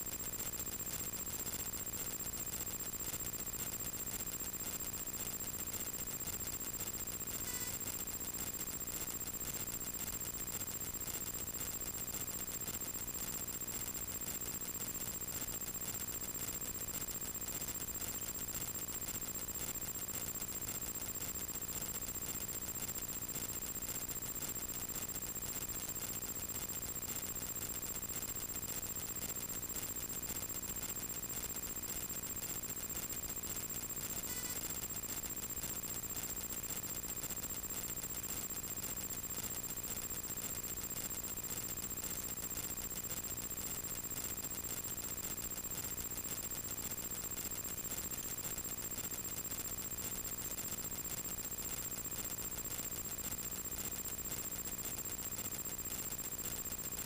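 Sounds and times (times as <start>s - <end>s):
high-pitched electrical whine: 30.4s - 36.7s.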